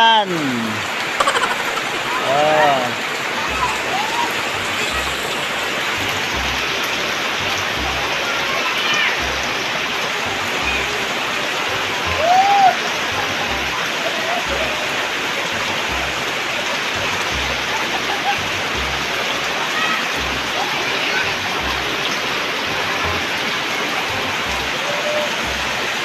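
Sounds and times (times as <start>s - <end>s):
rain falling: 0.0s - 26.0s
rising and falling calls: 1.2s - 3.0s.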